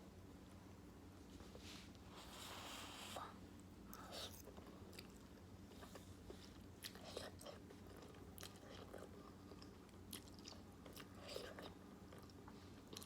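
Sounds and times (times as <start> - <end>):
low steady hum: 0.0 - 13.0
person chewing noodles: 3.9 - 13.0.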